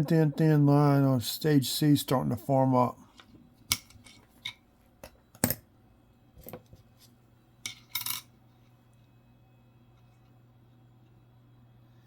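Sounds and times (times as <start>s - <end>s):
faint low hum: 0.0s - 12.0s
coins clicking and clinking: 7.7s - 8.3s.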